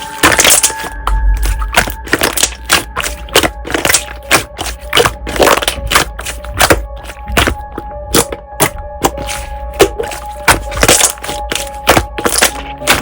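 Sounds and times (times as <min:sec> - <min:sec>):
slime popping and crackling: 0:00.0 - 0:13.0
soft background music: 0:00.0 - 0:13.0.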